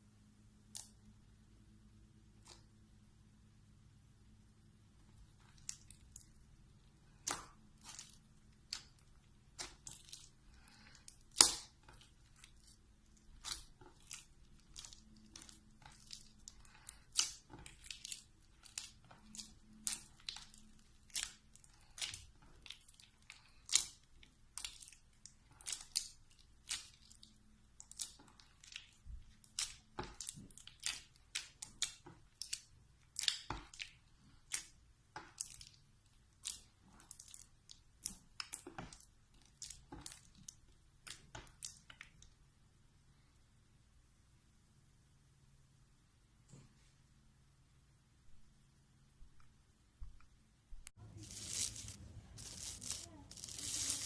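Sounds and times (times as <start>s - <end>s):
slime crackling and popping: 5.3s - 42.3s.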